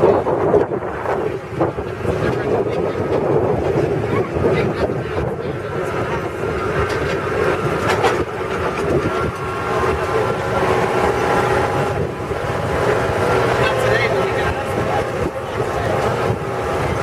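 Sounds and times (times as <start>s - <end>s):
truck engine drone: 0.0s - 17.0s.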